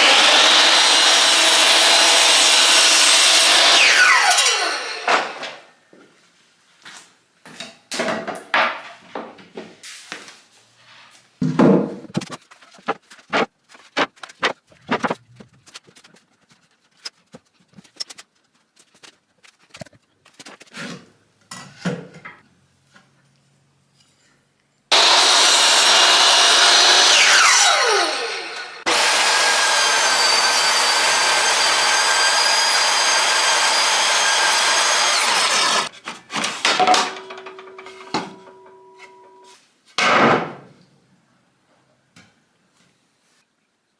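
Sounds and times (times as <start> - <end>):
electric woodworking power tool: 0.0 - 5.7, 24.9 - 35.9.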